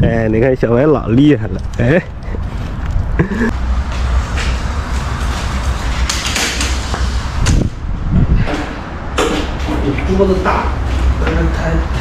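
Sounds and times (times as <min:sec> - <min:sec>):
wind buffeting microphone: 0:00.0 - 0:03.2, 0:04.2 - 0:12.0
rushing scrape: 0:03.5 - 0:08.9.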